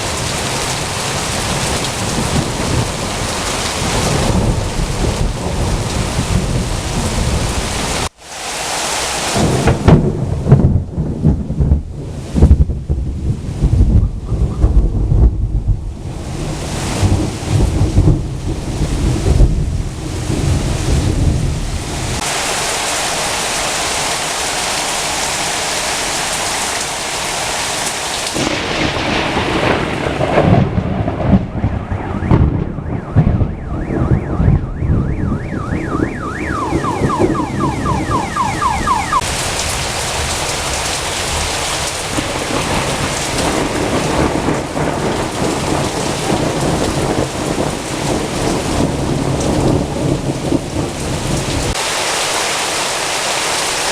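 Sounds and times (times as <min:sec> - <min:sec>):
thunder rumbling and cracking: 0:00.0 - 0:08.1, 0:09.2 - 0:22.5, 0:28.2 - 0:51.8
heavy rain hissing: 0:00.0 - 0:10.8, 0:14.9 - 0:31.6, 0:38.7 - 0:53.9
rapid electronic chirps: 0:33.6 - 0:39.2.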